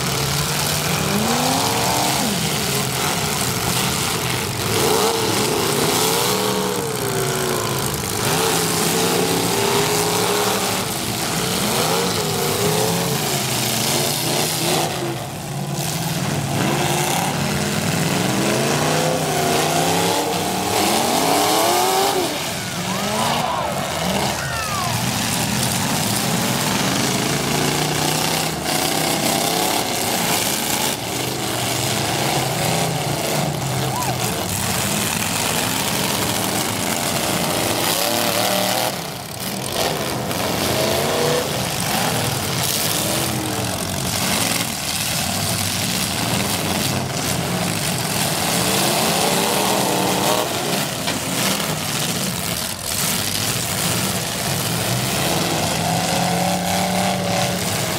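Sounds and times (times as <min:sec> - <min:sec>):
car engines revving: 0:00.0 - 0:57.9.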